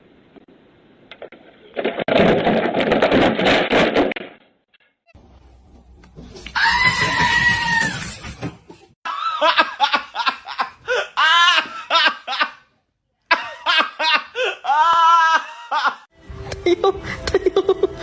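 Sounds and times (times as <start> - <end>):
person laughing hard: 9.1 - 12.6, 13.3 - 16.1, 16.7 - 18.0.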